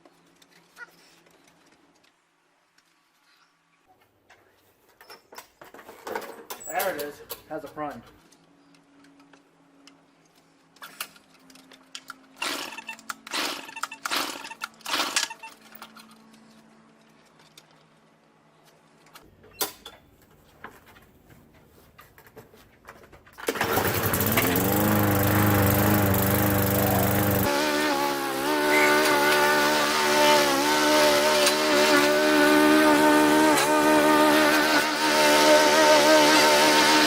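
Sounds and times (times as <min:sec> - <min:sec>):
recoil starter cord yanks: 0:23.4 - 0:27.5
lawnmower engine running: 0:23.4 - 0:37.0.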